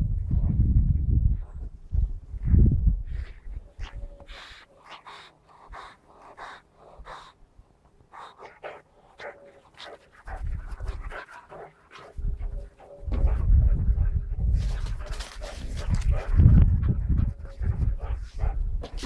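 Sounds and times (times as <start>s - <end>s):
puppy panting: 3.2s - 7.4s, 8.0s - 19.0s.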